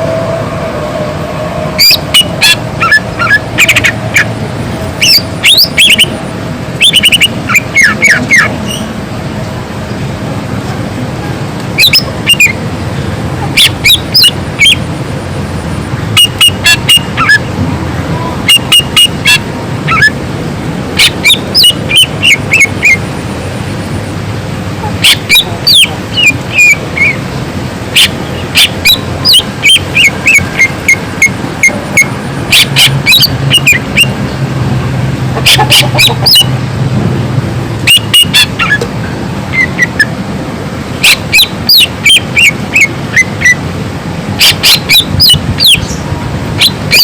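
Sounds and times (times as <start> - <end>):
steady low hum: 0.0 - 47.0
bird singing sharp calls: 5.0 - 6.2, 6.8 - 8.9, 11.8 - 12.6, 13.6 - 14.8, 21.0 - 23.0, 44.4 - 46.0.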